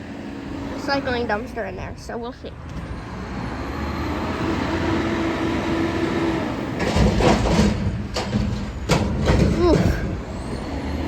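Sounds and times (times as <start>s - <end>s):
garbage truck diesel engine revving: 2.6s - 11.0s.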